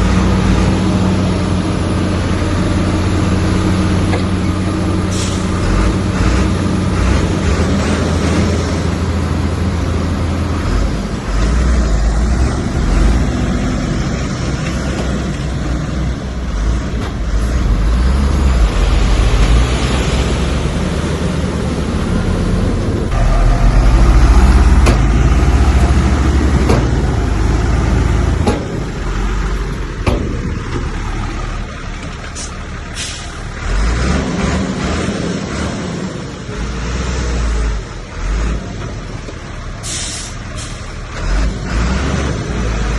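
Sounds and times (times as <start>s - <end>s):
diesel engine deep rumble: 0.0s - 42.9s
sharp knocks: 28.4s - 28.9s, 30.0s - 30.9s.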